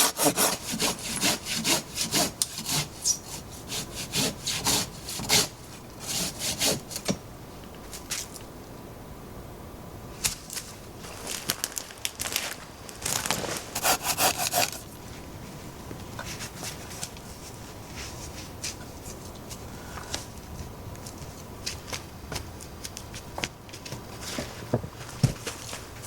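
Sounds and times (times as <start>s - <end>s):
rasping strokes on wood: 0.0s - 6.9s, 13.8s - 14.9s.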